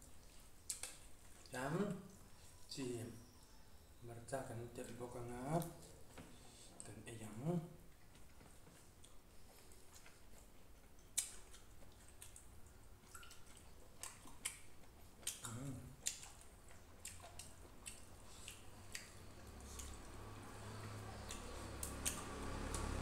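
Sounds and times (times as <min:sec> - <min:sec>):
chewing mouth smacks: 0:00.2 - 0:01.5, 0:07.9 - 0:23.0.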